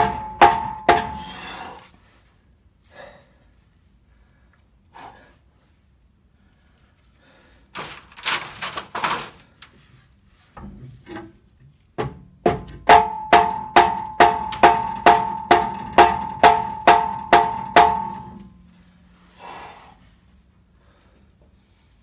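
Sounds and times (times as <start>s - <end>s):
hammer striking metal pipe: 0.0s - 1.6s, 12.0s - 18.6s.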